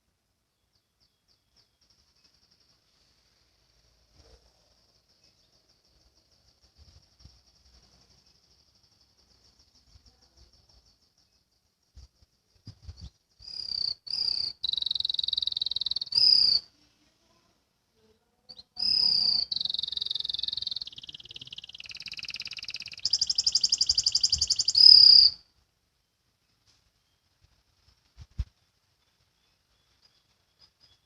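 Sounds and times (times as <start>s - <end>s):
canary singing trills: 4.2s - 16.7s, 18.5s - 25.5s.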